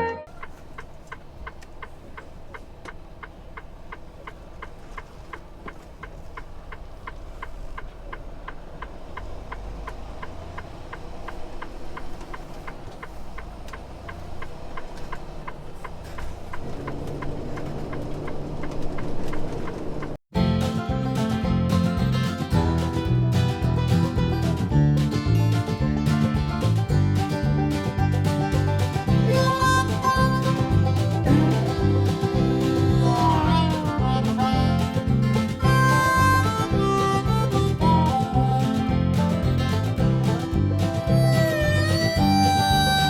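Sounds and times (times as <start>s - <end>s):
low engine rumble: 0.0s - 43.0s
rapid ticking: 0.3s - 21.3s, 23.8s - 43.0s.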